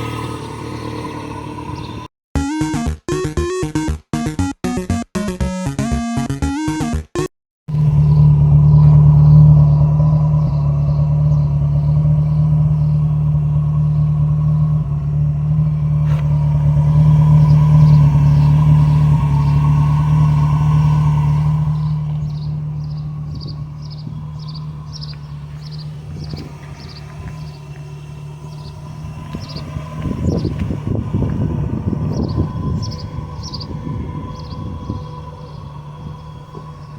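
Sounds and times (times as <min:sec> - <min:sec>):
car engine exhaust drone: 0:07.7 - 0:36.9.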